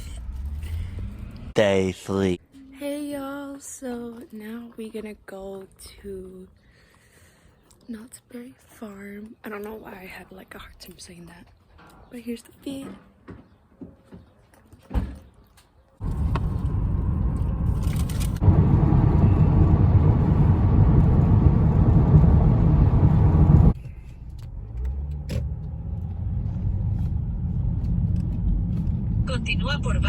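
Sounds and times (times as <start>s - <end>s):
car road noise rumble: 0.0s - 2.4s, 16.0s - 30.0s.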